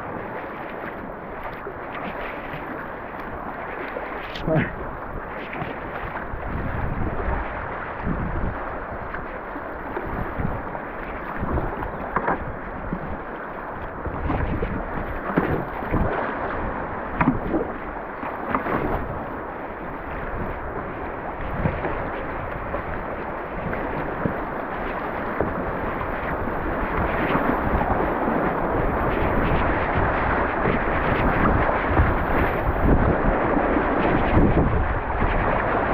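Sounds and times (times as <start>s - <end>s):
water splashes: 0.0s - 35.9s
wind buffeting microphone: 2.6s - 35.9s
river current rushing: 2.8s - 5.1s.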